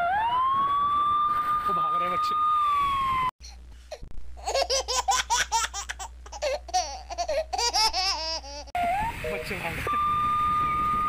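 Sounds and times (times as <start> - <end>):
siren: 0.0 - 3.3, 8.8 - 11.0.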